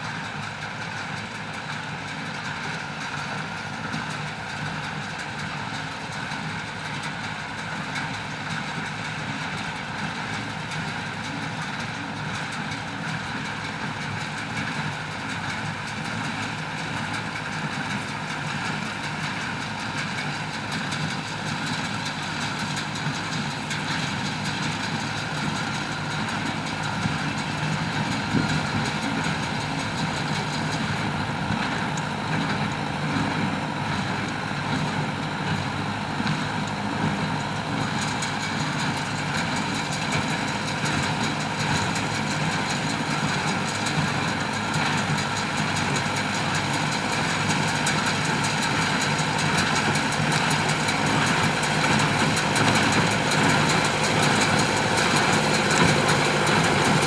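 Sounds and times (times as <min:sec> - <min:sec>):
tractor engine running: 0:00.0 - 0:57.0
baler machinery running: 0:16.0 - 0:57.0.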